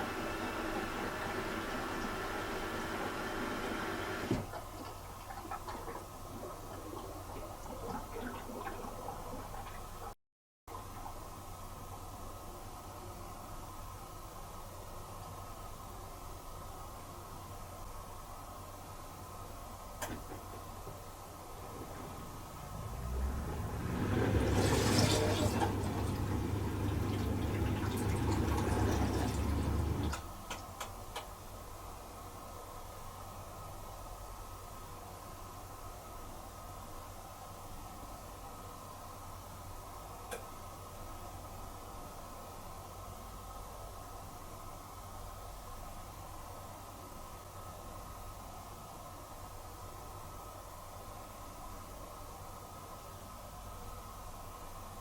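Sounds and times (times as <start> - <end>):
dishwasher humming: 0.0 - 10.1, 21.6 - 30.2
water swishing: 22.7 - 30.1.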